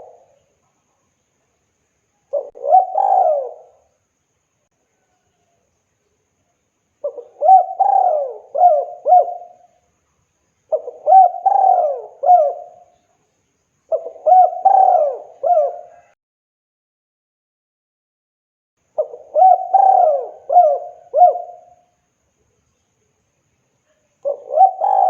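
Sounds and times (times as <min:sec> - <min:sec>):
dove cooing: 0:00.0 - 0:00.4, 0:02.3 - 0:03.9, 0:07.0 - 0:09.7, 0:10.7 - 0:12.9, 0:13.9 - 0:16.2, 0:19.0 - 0:21.8, 0:24.2 - 0:25.0.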